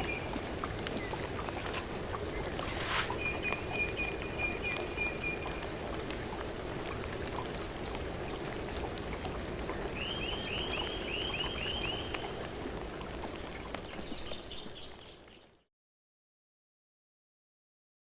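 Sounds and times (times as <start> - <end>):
woodland hiss: 0.0 - 5.0
songbird singing: 0.0 - 5.7, 9.9 - 12.4.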